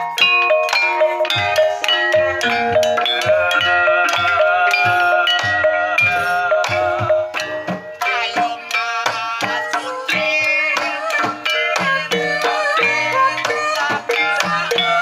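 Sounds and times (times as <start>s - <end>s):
hand drum strokes: 0.0s - 9.7s
bronze metallophones ringing: 0.0s - 15.0s.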